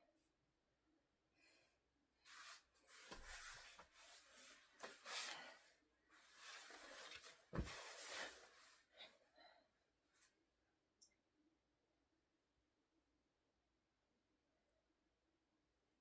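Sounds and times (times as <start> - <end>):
clothing rubbing on exercise mat: 2.3 - 8.8.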